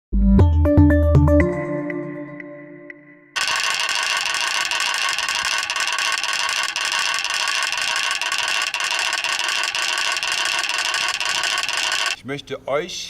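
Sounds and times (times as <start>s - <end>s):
wooden ratchet clacking: 3.4s - 12.2s.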